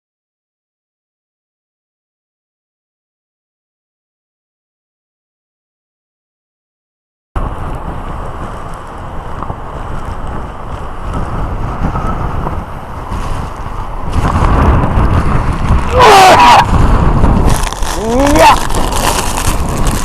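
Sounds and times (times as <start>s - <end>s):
wind buffeting microphone: 7.4s - 20.0s.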